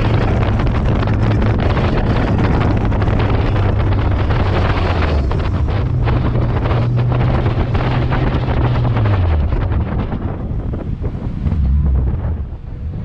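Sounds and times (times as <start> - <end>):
race car engine running: 0.0 - 13.0
wind buffeting microphone: 0.0 - 13.0.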